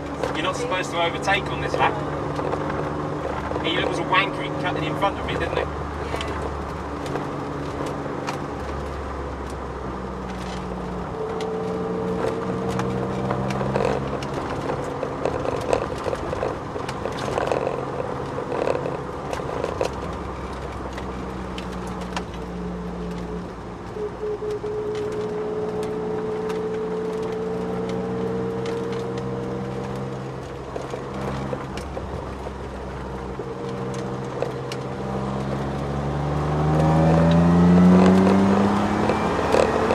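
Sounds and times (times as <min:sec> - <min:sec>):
car engine droning: 0:00.0 - 0:39.9
rising whine: 0:21.6 - 0:30.2.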